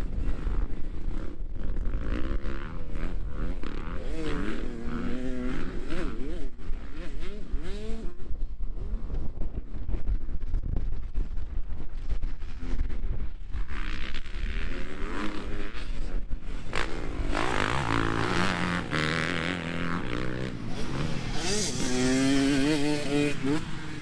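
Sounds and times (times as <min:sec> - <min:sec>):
dirt bike engines revving: 0:00.0 - 0:08.2, 0:13.7 - 0:24.0
wind rumble on microphone: 0:00.0 - 0:24.0.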